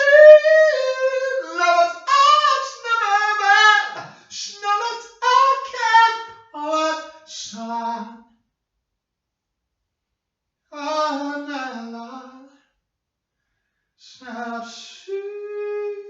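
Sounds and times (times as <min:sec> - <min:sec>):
person singing unaccompanied: 0:00.0 - 0:08.2, 0:14.1 - 0:16.0.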